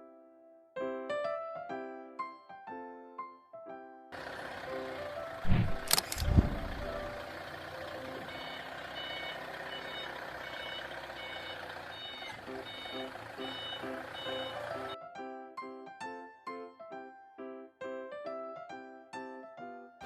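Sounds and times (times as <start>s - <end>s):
forklift running: 4.2s - 15.0s
heavy clunks: 5.4s - 7.1s
reversing alarm beeping: 8.0s - 15.0s.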